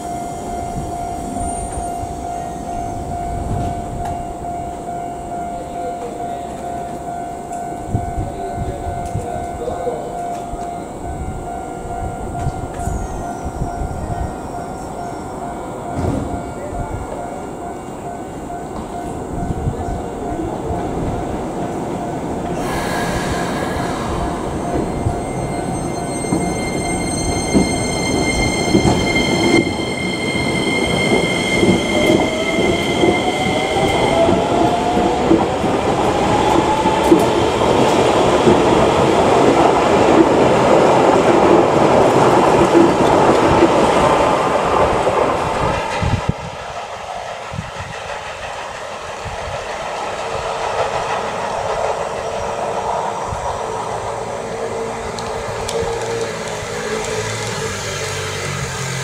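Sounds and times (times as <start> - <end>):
train wheels clattering on rails: 15.8 - 17.2, 18.4 - 59.0.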